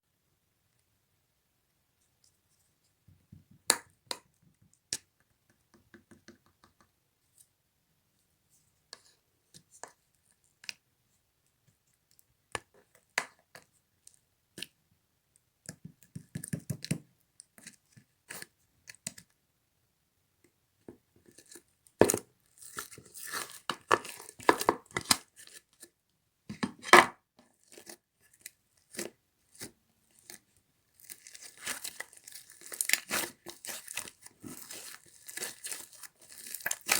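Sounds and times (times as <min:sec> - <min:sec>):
slime crackling and popping: 0:31.0 - 0:36.9.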